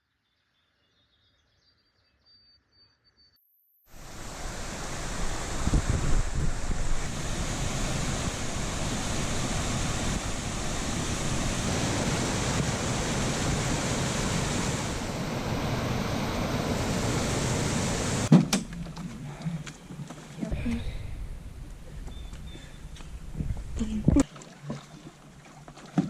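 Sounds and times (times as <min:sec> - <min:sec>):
rushing wind: 0:03.9 - 0:18.3, 0:20.4 - 0:24.2
wind buffeting microphone: 0:04.0 - 0:18.3, 0:20.4 - 0:24.2.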